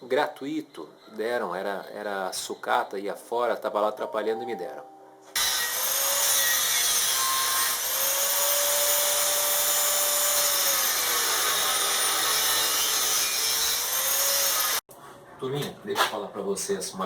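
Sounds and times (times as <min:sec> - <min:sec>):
angle grinder on steel: 0:05.4 - 0:14.8.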